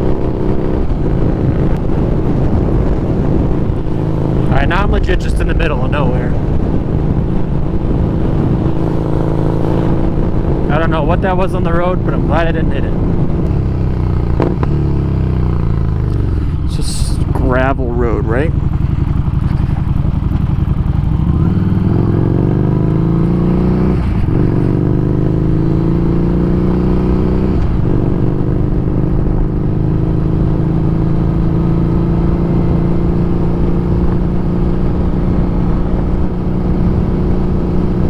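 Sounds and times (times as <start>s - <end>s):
road rumble on gravel: 0.0s - 26.4s
low wind: 0.0s - 38.0s
motorcycle engine accelerating: 0.0s - 38.0s.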